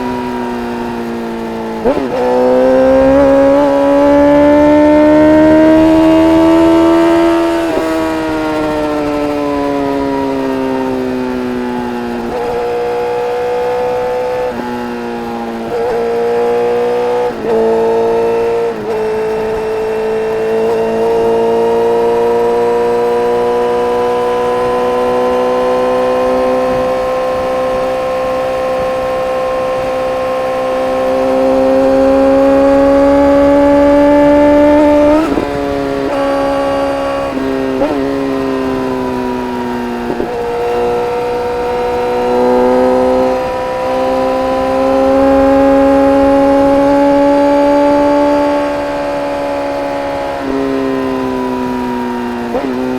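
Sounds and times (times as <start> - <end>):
motorcycle engine through gear changes: 0.0 - 52.9.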